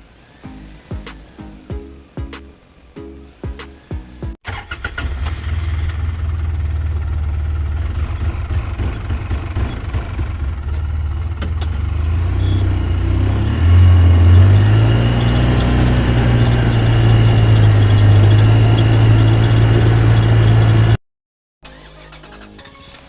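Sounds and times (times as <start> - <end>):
engine rumbling: 0.0 - 21.0
music: 0.5 - 4.4, 21.7 - 23.0.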